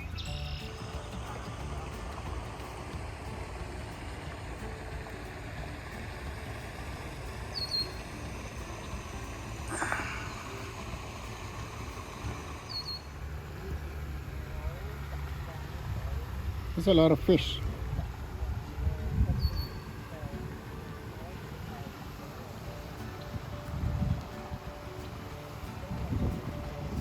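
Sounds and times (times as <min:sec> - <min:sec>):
steady low rumble: 0:00.0 - 0:16.9.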